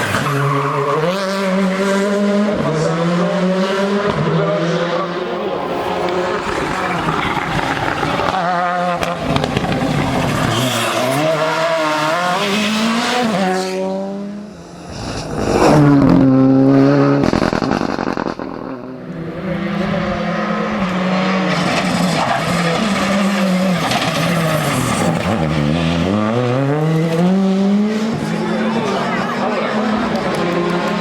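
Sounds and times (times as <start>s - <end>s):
car passing at high revs: 0.0s - 31.0s
rally car engines at full throttle: 0.0s - 31.0s.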